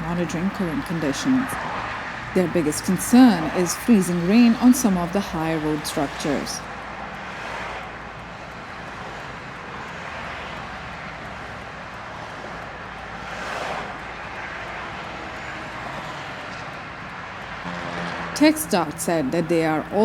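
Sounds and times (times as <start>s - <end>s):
road traffic noise: 0.0s - 20.0s
vehicle passing loudly: 17.3s - 20.0s.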